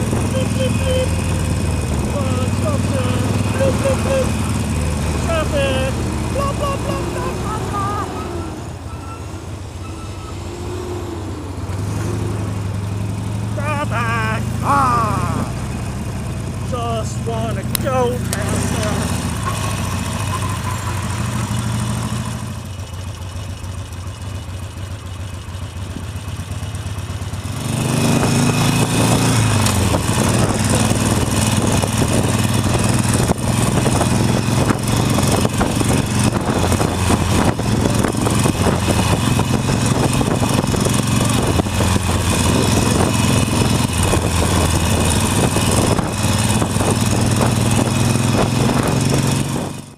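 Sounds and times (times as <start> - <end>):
motorcycle engine: 0.0 - 49.9
wind rushing over microphone: 28.0 - 49.9.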